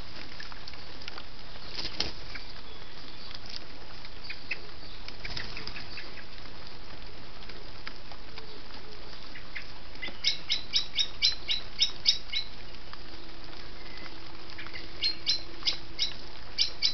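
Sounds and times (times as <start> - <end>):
background hiss: 0.0 - 16.9
wing flutters: 1.7 - 2.4
bird sharp calls: 9.3 - 12.6, 13.8 - 16.9.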